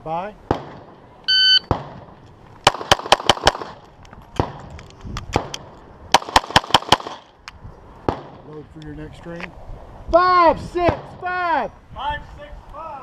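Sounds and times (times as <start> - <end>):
pistol shots: 1.7 - 3.8, 5.4 - 7.2.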